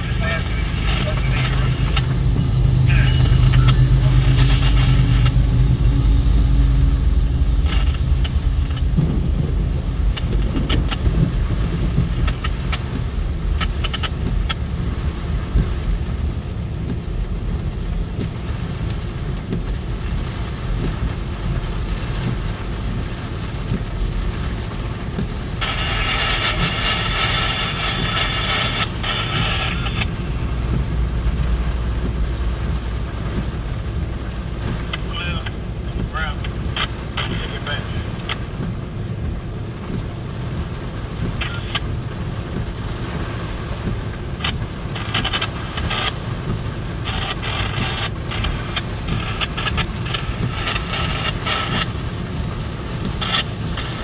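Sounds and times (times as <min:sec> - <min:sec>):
locomotive engines humming: 0:00.0 - 0:12.9
train cars rumbling and clattering: 0:00.0 - 0:17.1, 0:25.0 - 0:37.3
heavy rain: 0:00.0 - 0:54.0.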